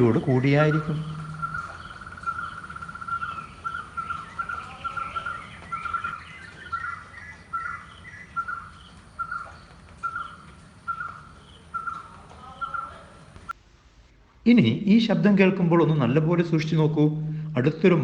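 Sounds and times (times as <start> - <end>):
bird repeating loud notes: 0.0 - 7.0, 10.0 - 13.2
bird trill: 0.0 - 13.5.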